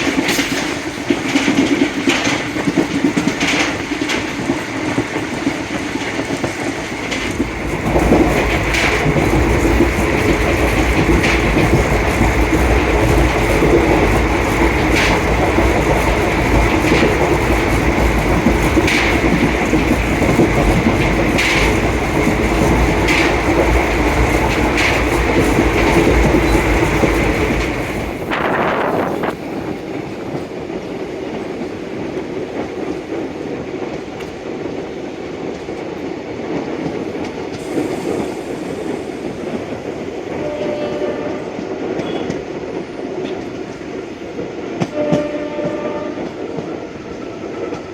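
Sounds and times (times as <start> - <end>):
wheels clicking over rail joints: 0.0 - 37.7
train rumbling on track: 0.0 - 47.9.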